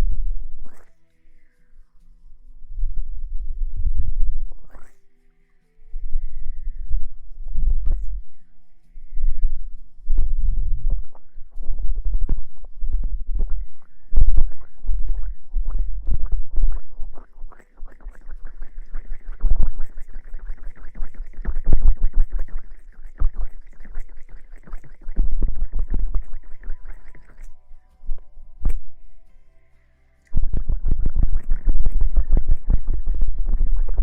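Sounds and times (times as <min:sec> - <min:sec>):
rustling and scratching: 0:06.1 - 0:29.4.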